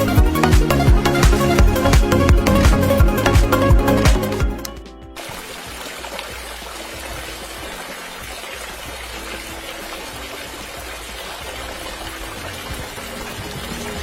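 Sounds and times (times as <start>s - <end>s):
water pouring and splashing: 5.2s - 14.0s.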